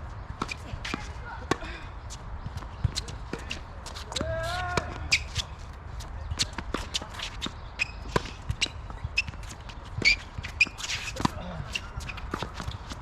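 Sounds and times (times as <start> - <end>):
footsteps on court: 0.3 - 13.0
tennis ball bounces: 0.4 - 1.7, 6.3 - 13.0
shoe squeal: 2.8 - 5.6, 6.2 - 13.0.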